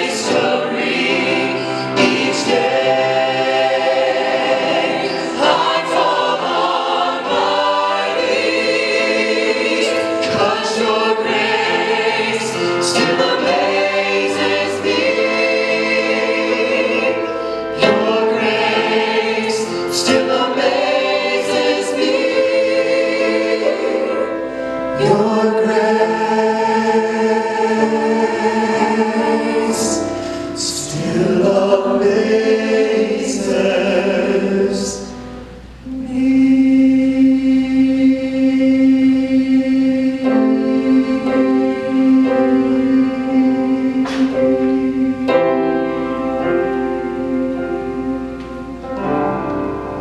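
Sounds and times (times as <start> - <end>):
choir singing: 0.0 - 50.0.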